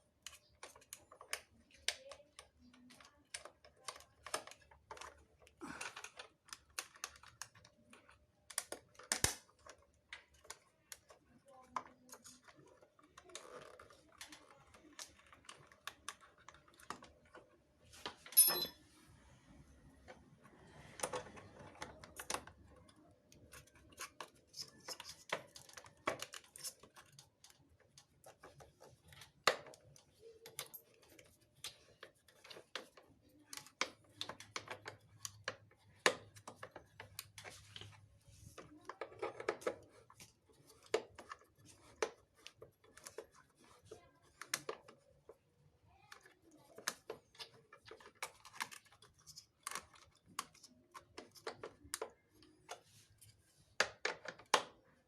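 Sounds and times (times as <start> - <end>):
clicks and taps of tools and parts: 0.1 - 18.8, 21.0 - 45.4, 46.1 - 55.0
sharp metallic clink: 18.3 - 18.8.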